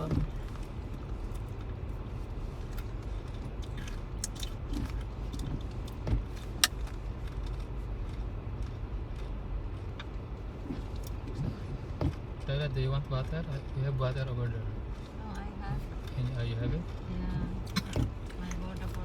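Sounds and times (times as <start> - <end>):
road and engine rumble in car: 0.0 - 19.0.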